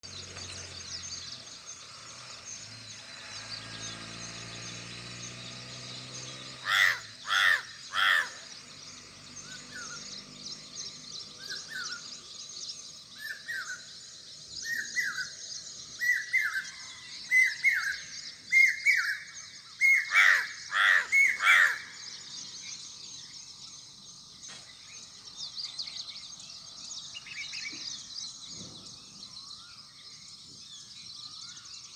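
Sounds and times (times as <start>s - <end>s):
harsh bird calls: 0.0s - 23.8s
birds twittering: 0.0s - 31.9s.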